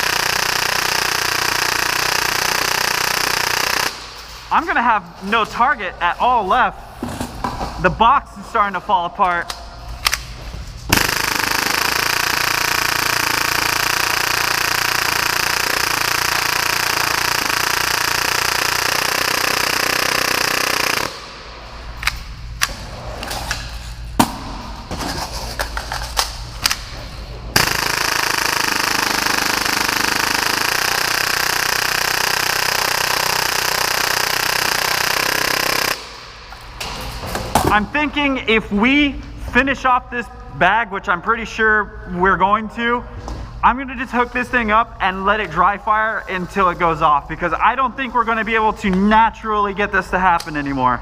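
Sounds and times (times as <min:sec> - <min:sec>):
airsoft pistol firing bursts: 0:00.0 - 0:04.2, 0:10.9 - 0:21.4, 0:27.6 - 0:36.2.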